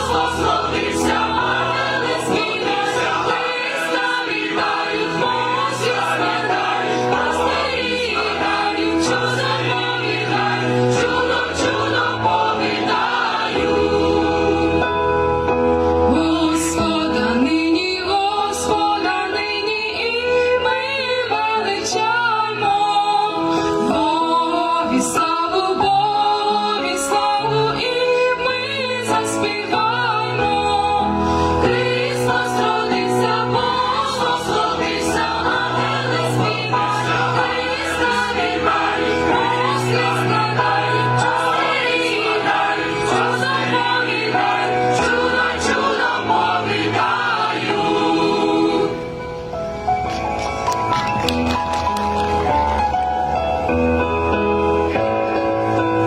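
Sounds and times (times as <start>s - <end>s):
mixed choir singing a carol: 0.0s - 49.4s.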